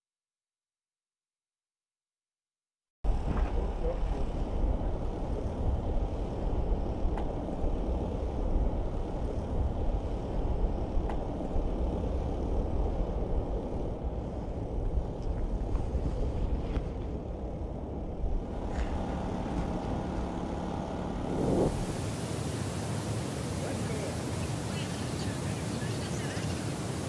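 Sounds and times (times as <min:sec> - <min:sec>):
low rumbling noise: 0:03.0 - 0:27.0
faint ticks: 0:11.0 - 0:11.7.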